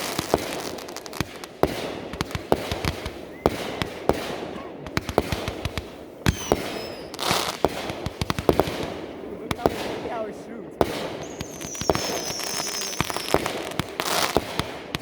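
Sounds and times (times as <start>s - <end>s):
crackling hiss: 0.0s - 4.1s, 4.8s - 15.0s
fireworks bangs and pops: 0.0s - 15.0s
firework whistle: 3.1s - 4.2s, 6.2s - 7.7s, 10.9s - 14.4s.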